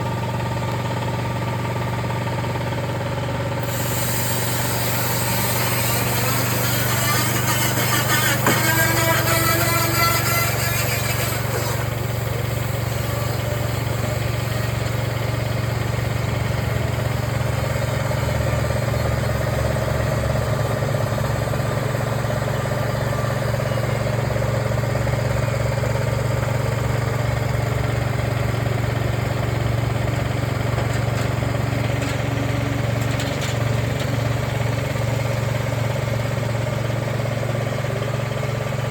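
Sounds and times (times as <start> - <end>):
motor humming: 3.6 - 15.3.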